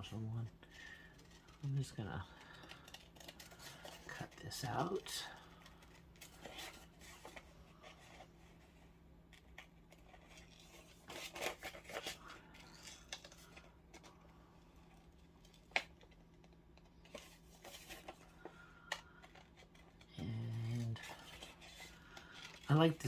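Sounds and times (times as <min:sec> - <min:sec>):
faint low hum: 0:00.0 - 0:23.0
scissors snipping paper: 0:02.4 - 0:05.0.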